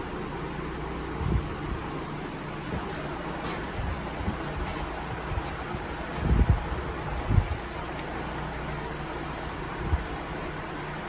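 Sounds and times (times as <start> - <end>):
workshop background hiss: 2.5 - 11.0.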